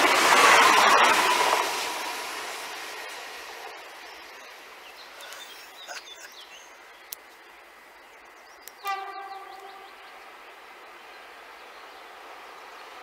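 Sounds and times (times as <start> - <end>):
electric train passing: 0.0 - 13.0
birds chirping: 3.9 - 12.4
loud steady call with overtones: 8.8 - 10.7.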